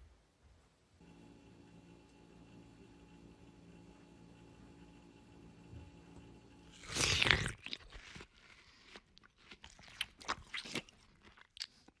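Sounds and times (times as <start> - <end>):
loud bite: 6.7 - 8.2
person chewing and crunching food: 6.7 - 12.0.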